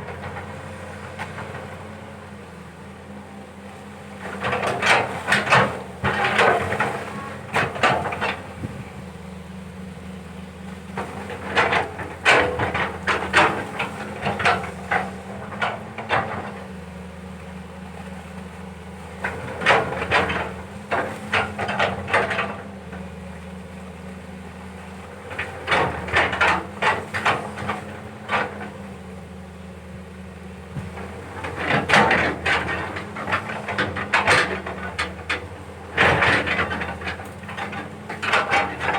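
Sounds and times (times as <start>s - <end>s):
excavator running: 0.0s - 38.9s
bucket clanking and knocking: 30.8s - 38.9s.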